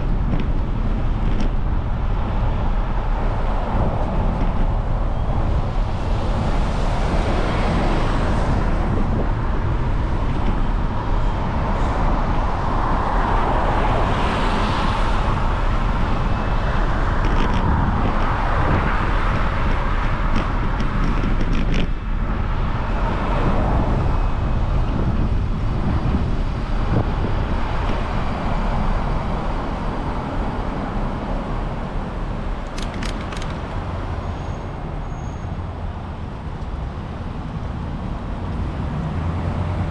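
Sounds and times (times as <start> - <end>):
cars passing: 0.0 - 39.9
road traffic noise: 0.0 - 39.9.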